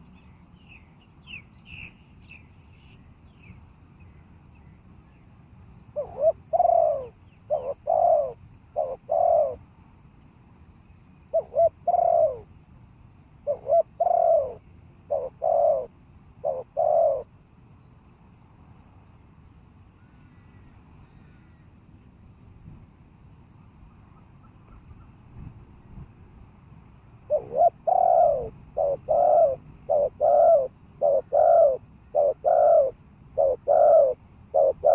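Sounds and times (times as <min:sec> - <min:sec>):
dove cooing: 0:05.9 - 0:09.6, 0:11.3 - 0:12.6, 0:13.4 - 0:17.3, 0:27.3 - 0:34.9.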